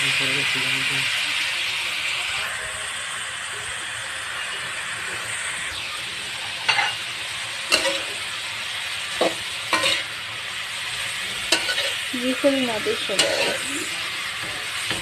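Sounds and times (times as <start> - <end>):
food sizzling in a wok: 0.0 - 15.0
spatula scraping a pan: 6.7 - 7.0, 7.7 - 8.1, 9.2 - 10.2, 11.2 - 15.0.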